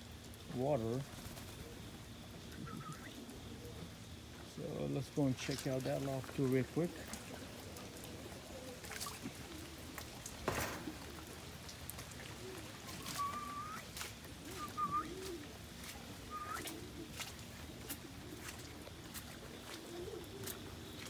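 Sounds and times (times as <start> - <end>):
pigeons cooing: 0.7 - 5.2, 6.2 - 21.0
loud knock: 10.5 - 11.1
high rising whistle-like calls: 12.9 - 13.9, 14.5 - 15.3, 16.3 - 16.8.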